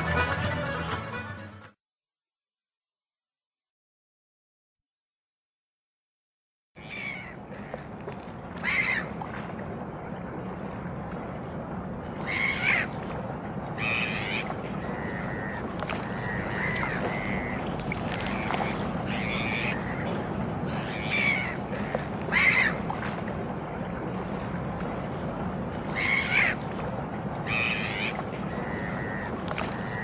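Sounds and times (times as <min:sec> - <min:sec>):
soft drawn-out bird notes: 0:09.8 - 0:30.0
birds giving harsh calls: 0:13.8 - 0:17.6, 0:18.2 - 0:22.9, 0:25.8 - 0:26.6, 0:27.4 - 0:30.0.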